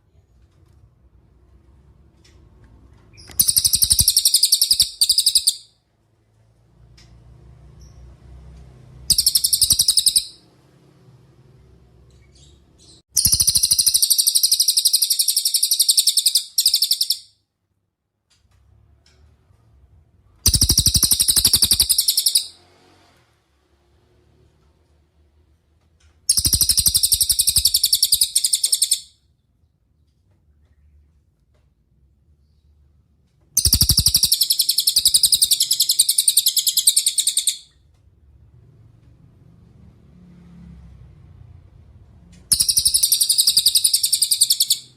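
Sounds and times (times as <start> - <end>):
bird trilling: 3.2 - 5.7, 9.1 - 10.4, 13.2 - 17.3, 20.4 - 22.6, 26.3 - 29.1, 33.6 - 37.8, 42.5 - 44.9.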